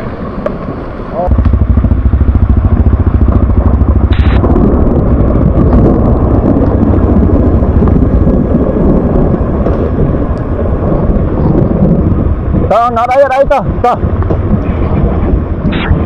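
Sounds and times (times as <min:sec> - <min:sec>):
motorcycle engine running: 0:01.3 - 0:12.5.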